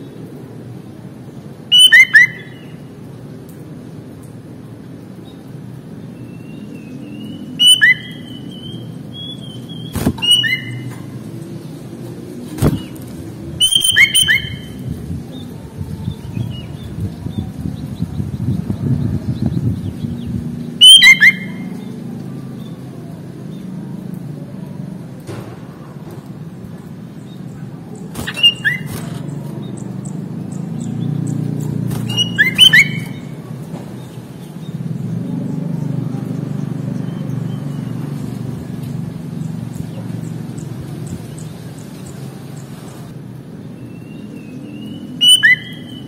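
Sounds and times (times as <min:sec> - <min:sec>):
vehicle engine rumble: 0:02.8 - 0:46.0
faint bird chirps: 0:06.3 - 0:11.0, 0:27.9 - 0:31.4, 0:32.0 - 0:33.4, 0:43.8 - 0:46.0
bird sliding call notes: 0:09.8 - 0:11.0, 0:28.2 - 0:29.4, 0:32.0 - 0:33.3
steady low rumble: 0:14.6 - 0:20.8.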